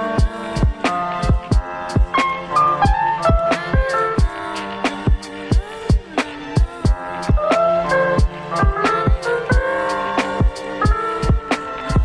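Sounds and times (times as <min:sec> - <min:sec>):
held melodic notes: 0:00.0 - 0:12.0
kick drum beat: 0:00.2 - 0:02.2, 0:02.8 - 0:04.4, 0:05.1 - 0:07.6, 0:08.2 - 0:09.7, 0:10.4 - 0:12.0.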